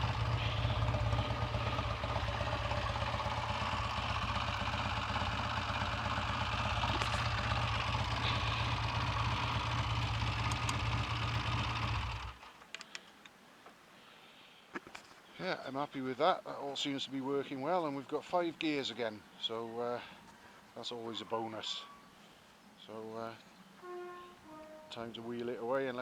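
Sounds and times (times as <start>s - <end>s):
motorcycle engine idling: 0.0s - 12.5s.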